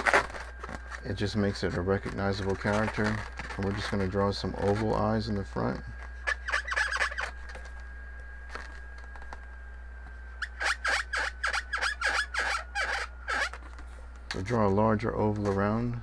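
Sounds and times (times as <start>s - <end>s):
marker squeaking on balloon: 6.2s - 7.3s, 10.4s - 13.7s.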